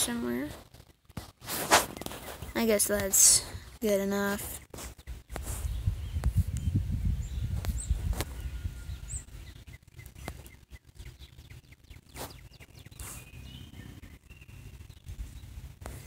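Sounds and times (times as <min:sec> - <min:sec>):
outdoor background noise: 0:00.0 - 0:16.0
high bird chirps: 0:04.1 - 0:15.7.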